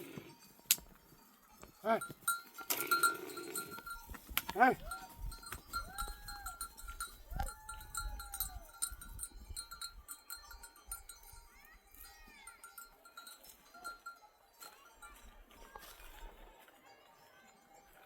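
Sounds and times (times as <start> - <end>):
neck bells clinking: 0.0 - 18.0
sheep bleating: 1.8 - 8.5.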